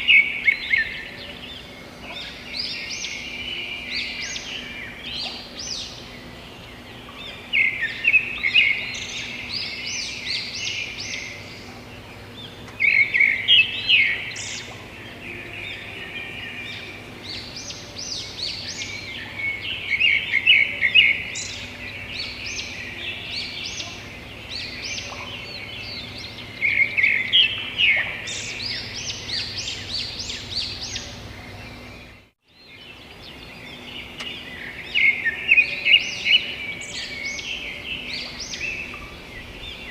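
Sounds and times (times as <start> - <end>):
birds chirping and chattering: 0.0 - 39.9.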